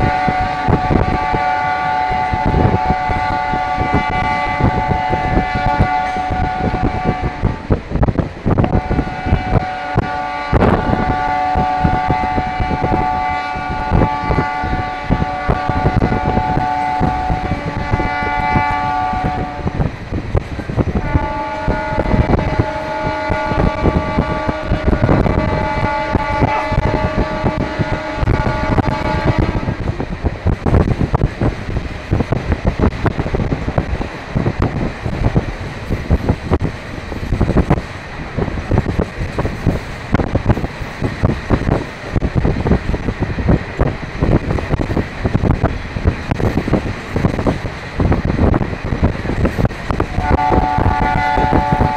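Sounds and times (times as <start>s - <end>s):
train wheels clattering: 15.0s - 51.9s.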